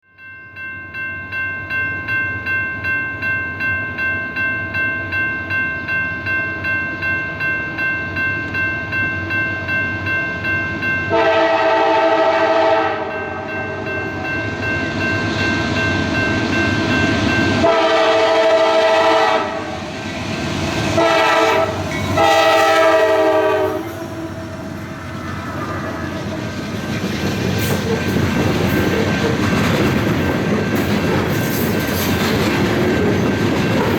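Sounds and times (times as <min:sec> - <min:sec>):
crossing bell clanging: 0:00.0 - 0:33.9
train rumble: 0:10.3 - 0:33.9
locomotive air horn: 0:11.1 - 0:13.8, 0:17.6 - 0:19.8, 0:20.9 - 0:26.2.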